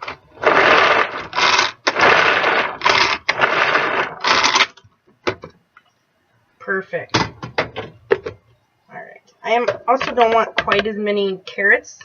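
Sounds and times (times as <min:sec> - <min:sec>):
carrot pieces rattling in bowl: 0:00.4 - 0:04.8
pull-cord food chopper spinning: 0:00.4 - 0:04.8.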